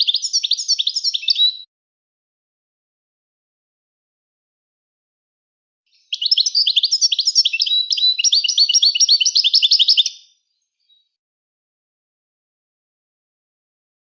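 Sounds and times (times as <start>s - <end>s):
bird singing high chirps: 0.0s - 1.7s, 5.9s - 11.2s.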